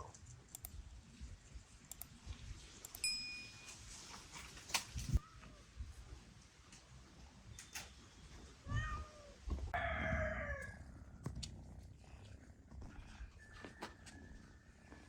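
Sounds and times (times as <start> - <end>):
light clicks: 0.0 - 0.8, 1.9 - 2.2.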